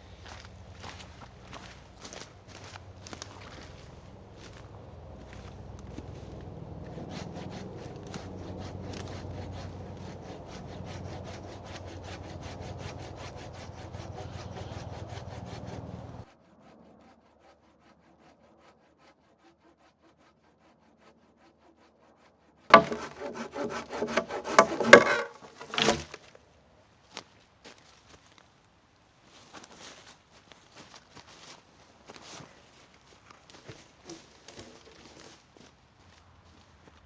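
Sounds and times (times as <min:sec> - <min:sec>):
saw cutting wood: 0:05.4 - 0:16.3, 0:22.7 - 0:26.3.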